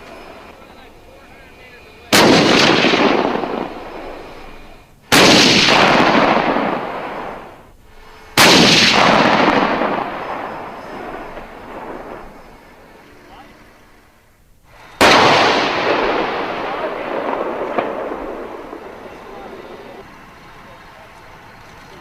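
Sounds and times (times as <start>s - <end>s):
heavy gunshots echoing: 2.1s - 4.5s, 5.1s - 7.6s, 8.4s - 12.9s, 15.0s - 19.6s.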